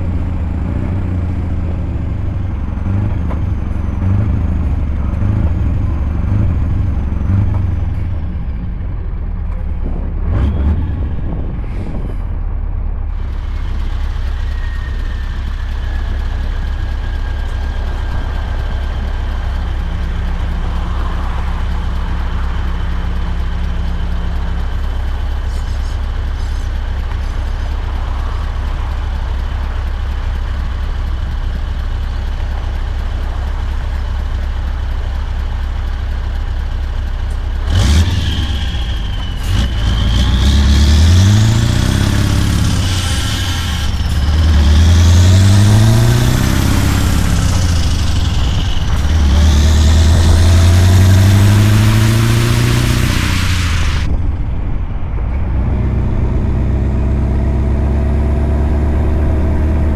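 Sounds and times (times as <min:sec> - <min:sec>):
truck diesel engine droning: 0:00.0 - 0:59.9
sharp burst of noise: 0:38.1 - 0:54.1.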